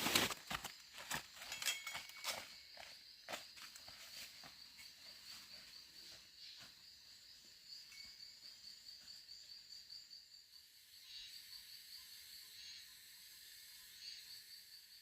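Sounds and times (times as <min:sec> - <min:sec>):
insect chirring: 0:06.6 - 0:15.0
hiss of other insects: 0:10.6 - 0:15.0.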